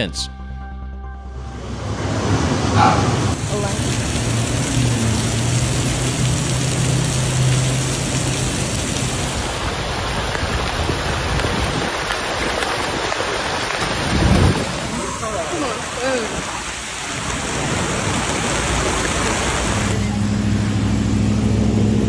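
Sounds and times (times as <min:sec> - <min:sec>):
low rumble: 0:00.3 - 0:06.4
heavy rain on water: 0:02.2 - 0:21.5.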